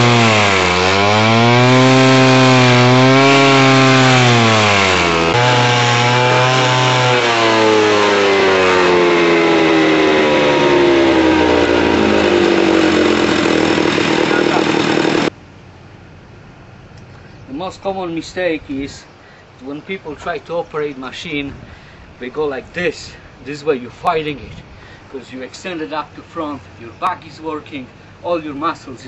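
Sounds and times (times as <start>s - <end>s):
cutting wheel grinding wood: 0.0s - 15.3s
stump grinder engine running: 0.0s - 15.3s.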